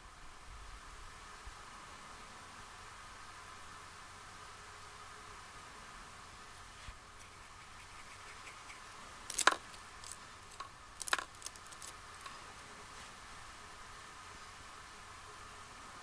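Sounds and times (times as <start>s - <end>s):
makeup tools clicking: 7.2s - 12.3s.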